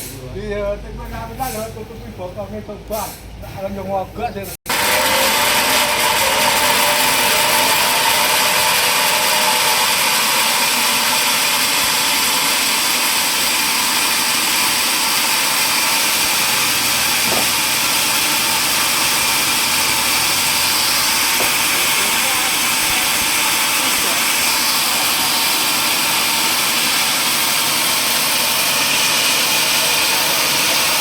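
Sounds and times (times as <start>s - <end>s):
power saw cutting wood: 4.7s - 31.0s.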